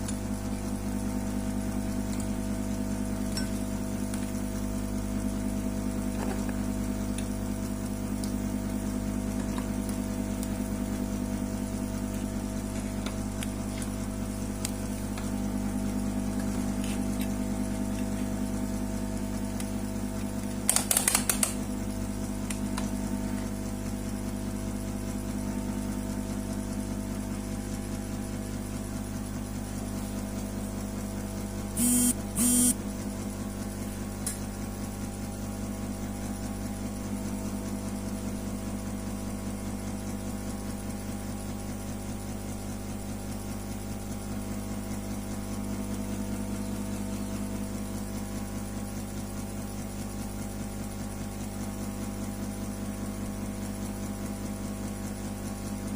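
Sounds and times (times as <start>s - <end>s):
machine hum with rapid pulse: 0.0s - 55.9s
short loud bursts: 31.8s - 32.8s.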